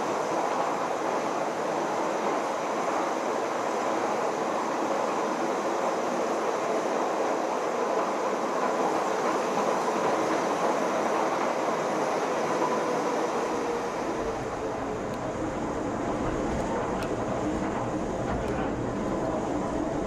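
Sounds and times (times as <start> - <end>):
train rushing noise: 0.0 - 20.0
faint steady whine: 12.7 - 20.0.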